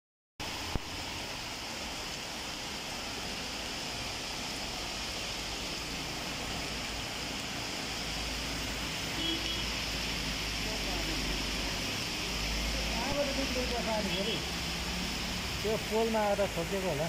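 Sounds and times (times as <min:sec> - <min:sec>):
heavy rain on flooded street: 0:00.4 - 0:17.0.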